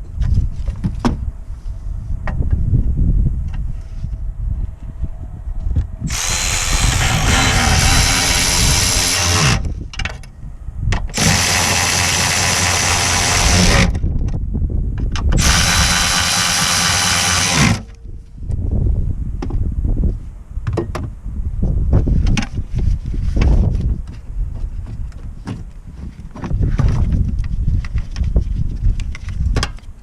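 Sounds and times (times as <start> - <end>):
power tool running: 6.1 - 9.8, 11.1 - 14.0, 15.4 - 18.0.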